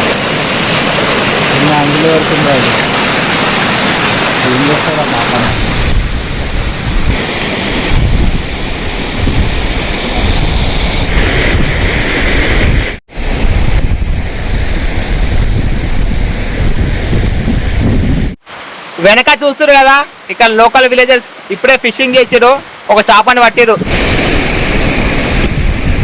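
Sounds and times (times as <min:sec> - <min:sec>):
waterfall rushing: 0:00.0 - 0:13.5, 0:17.7 - 0:26.0
wind buffeting microphone: 0:05.4 - 0:18.4, 0:23.8 - 0:26.0.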